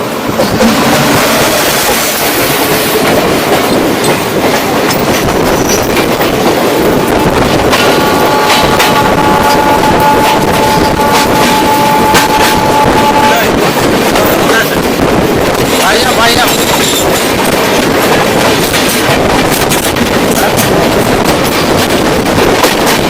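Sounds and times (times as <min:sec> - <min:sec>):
train running fast on rails: 0:00.0 - 0:23.0
train horn blast: 0:00.6 - 0:02.1, 0:07.0 - 0:13.9.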